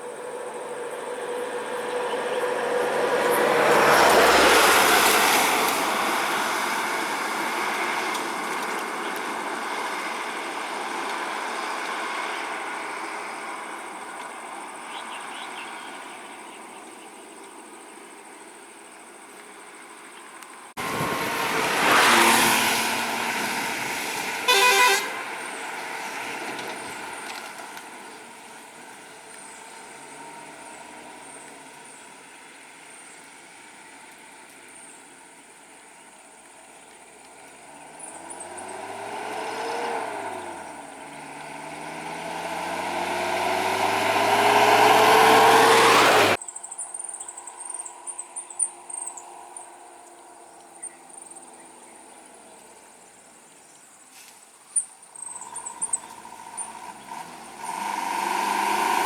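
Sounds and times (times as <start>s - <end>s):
engine revving: 0.0s - 13.7s, 20.8s - 32.3s, 37.4s - 46.4s, 55.2s - 59.0s
crickets chirping: 0.0s - 59.0s
vehicle horn toot: 24.3s - 25.6s.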